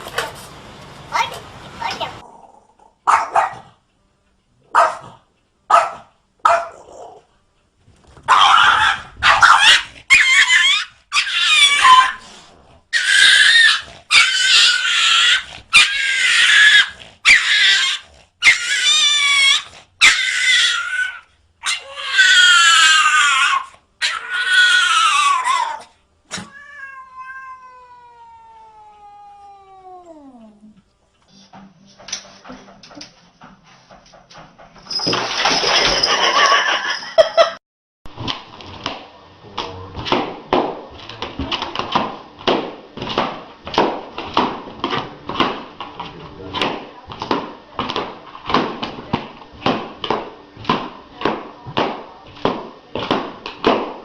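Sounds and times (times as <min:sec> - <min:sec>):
cat yowling: 0:08.3 - 0:12.2, 0:13.0 - 0:30.6.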